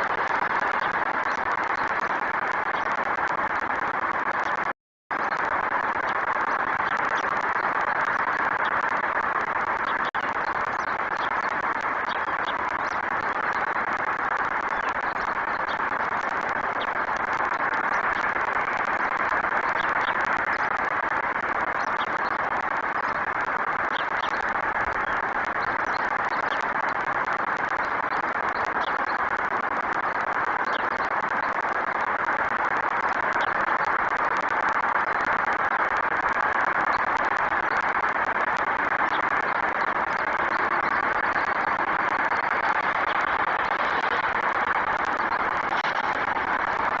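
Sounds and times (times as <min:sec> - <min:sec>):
outdoor background noise: 0:00.0 - 0:47.0
high bird chirps: 0:00.1 - 0:20.9, 0:21.7 - 0:29.3, 0:30.2 - 0:31.6.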